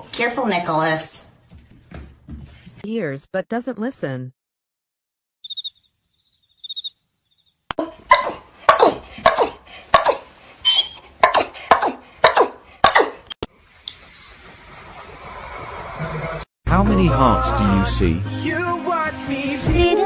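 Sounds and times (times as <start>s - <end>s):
faint high chirps: 5.4s - 7.6s
pet calling: 8.1s - 13.3s.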